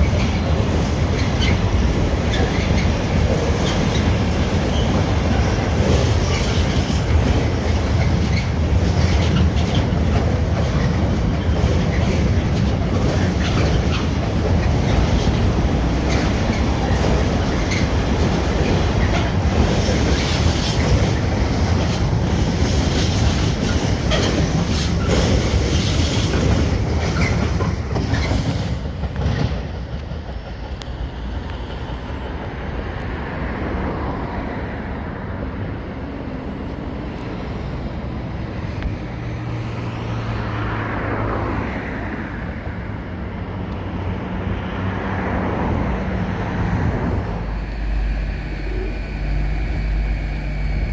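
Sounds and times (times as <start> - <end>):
train wheels clattering: 0.0 - 33.2.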